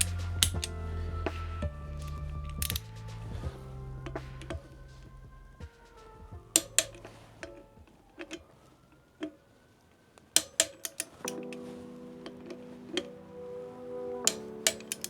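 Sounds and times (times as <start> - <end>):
background music: 0.0 - 15.0
torque wrench clicks: 2.6 - 2.9, 14.3 - 15.0.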